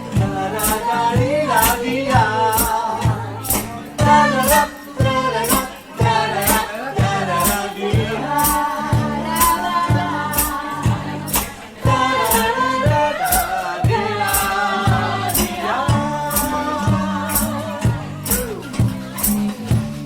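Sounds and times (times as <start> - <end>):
vocal trio singing in harmony: 0.0 - 19.5
bass line: 0.0 - 20.0
hand percussion: 0.0 - 20.0.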